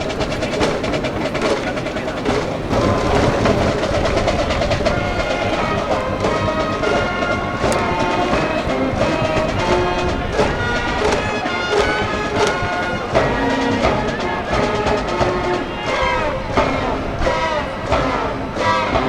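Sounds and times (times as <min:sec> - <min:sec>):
brass band melody: 0:00.0 - 0:19.0
drum beats: 0:00.0 - 0:19.0.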